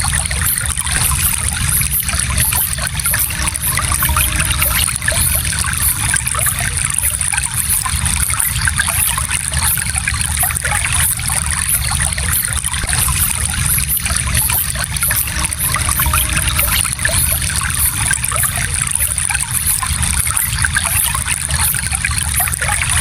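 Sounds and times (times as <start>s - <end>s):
shallow stream flowing over stones: 0.0s - 23.0s.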